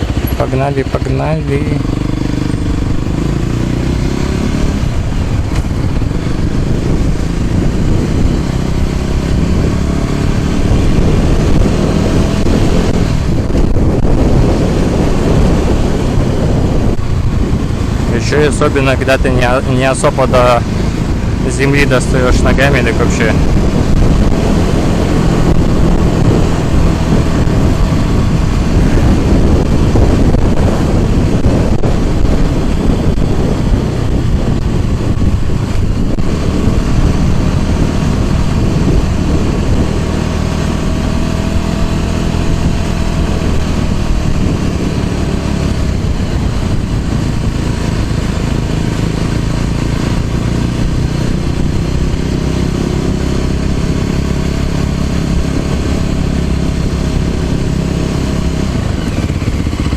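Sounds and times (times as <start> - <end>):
small motorbike engine revving: 19.8 - 59.9.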